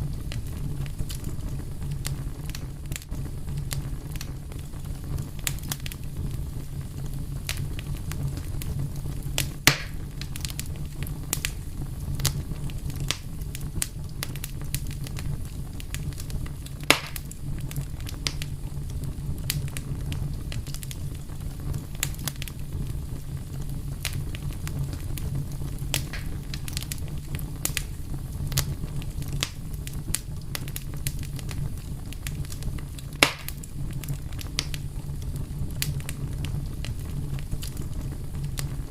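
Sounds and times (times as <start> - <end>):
loud pops of fire: 0.0 - 38.9
wood fire crackling: 0.0 - 38.9.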